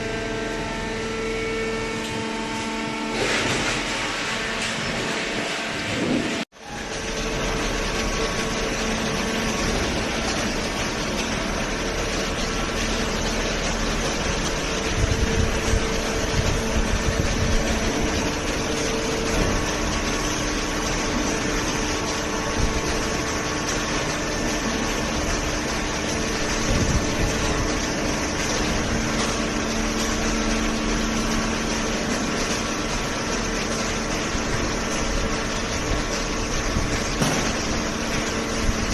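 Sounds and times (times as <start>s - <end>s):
machinery humming: 0.0s - 38.9s
loud knocks: 37.1s - 37.8s.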